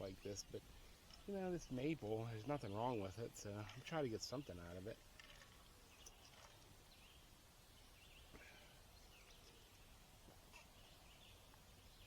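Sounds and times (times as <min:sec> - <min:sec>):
faint outdoor ambience: 0:00.0 - 0:12.0
soft bird chirps: 0:05.3 - 0:12.0.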